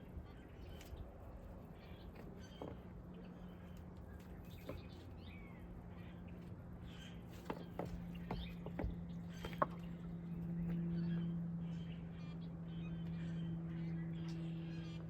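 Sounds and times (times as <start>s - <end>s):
steady low hum: 0.0s - 15.0s
bird chirps and ticks: 7.4s - 11.2s.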